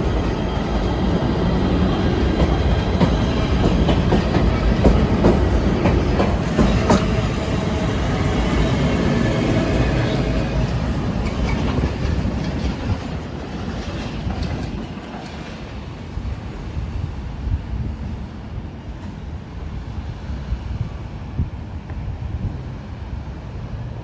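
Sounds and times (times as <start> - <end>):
train wheels clicking over rail joints: 0.0 - 16.3
train rumble: 0.0 - 24.0.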